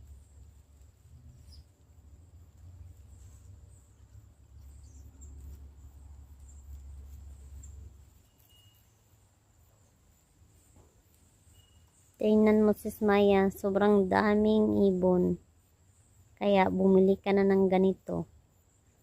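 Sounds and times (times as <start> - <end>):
bird chirps: 1.2 - 1.9, 2.9 - 13.1.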